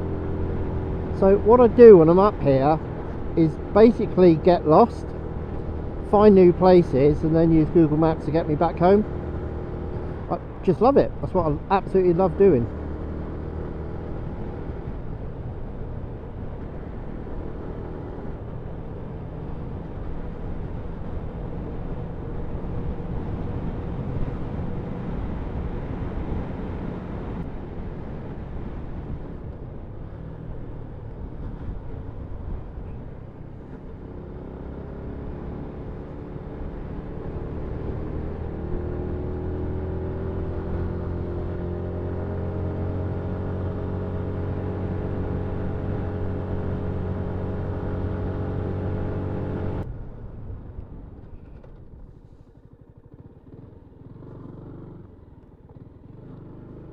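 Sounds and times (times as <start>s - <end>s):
motorcycle engine running: 30.0s - 56.9s.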